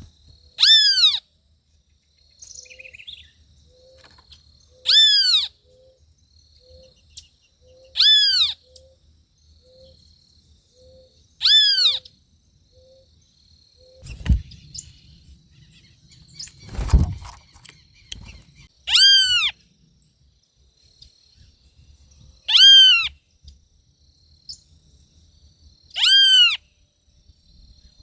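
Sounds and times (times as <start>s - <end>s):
low thumps: 14.1s - 14.6s.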